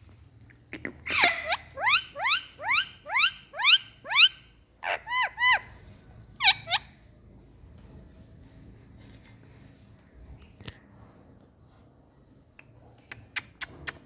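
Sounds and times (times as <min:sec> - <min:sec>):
parrot calling: 0:01.0 - 0:05.7, 0:06.4 - 0:07.0.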